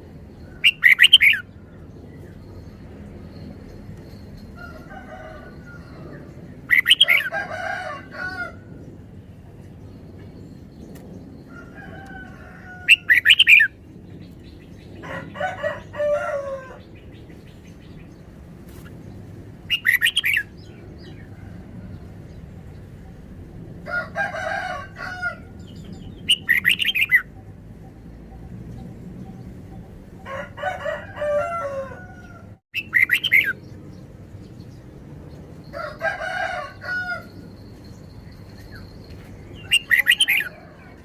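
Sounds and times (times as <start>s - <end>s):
bird singing warbling phrases: 0.6s - 1.5s, 6.7s - 7.3s, 19.7s - 20.5s, 25.7s - 27.3s, 32.8s - 33.6s, 39.6s - 40.5s.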